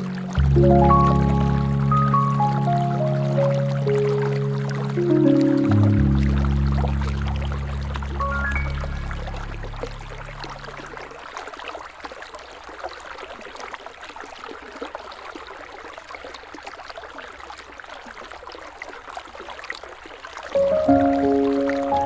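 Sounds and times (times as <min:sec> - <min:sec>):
low background music: 0:00.0 - 0:11.0, 0:20.6 - 0:22.0
river water babbling: 0:00.0 - 0:22.0.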